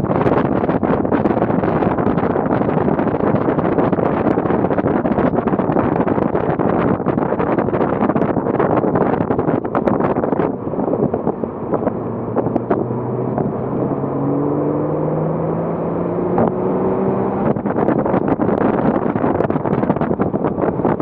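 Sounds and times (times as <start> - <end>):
wind buffeting microphone: 0.0 - 21.0
car engine accelerating: 9.5 - 21.0.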